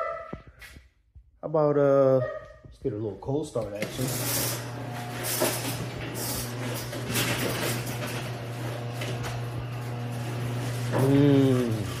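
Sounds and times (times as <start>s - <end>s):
garage door rattle: 3.6s - 11.0s
garage door motor hum: 3.6s - 12.0s.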